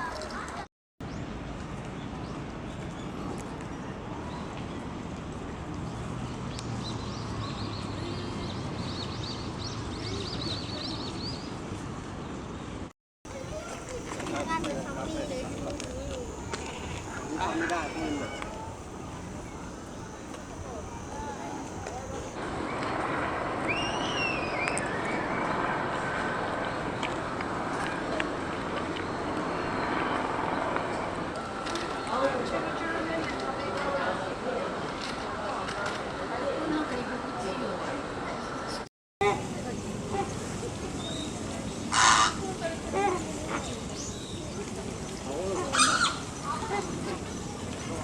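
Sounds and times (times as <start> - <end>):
high arching call: 13.3 - 22.4
songbird chirping: 13.3 - 22.4
distant traffic: 13.3 - 32.0.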